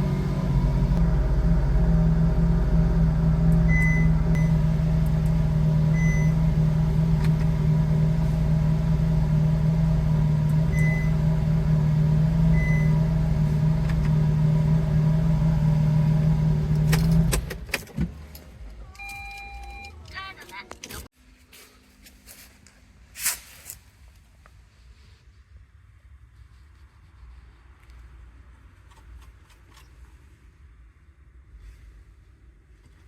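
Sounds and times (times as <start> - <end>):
car engine idling: 0.0 - 17.7.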